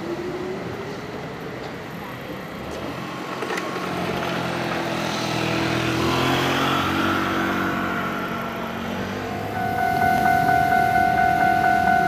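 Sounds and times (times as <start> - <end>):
train running noise: 0.0 - 6.0, 7.6 - 12.0
electric train motor whine: 8.4 - 12.0.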